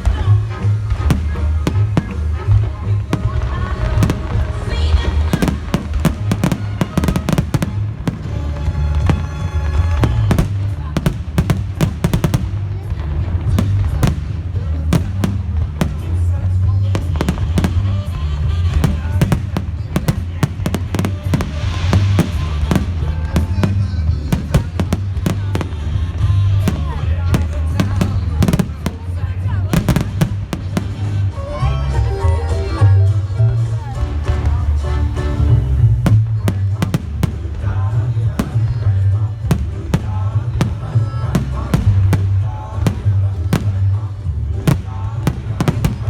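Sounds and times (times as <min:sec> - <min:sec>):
fireworks bangs and crackles: 0:00.0 - 0:46.0
loud music: 0:00.0 - 0:46.0.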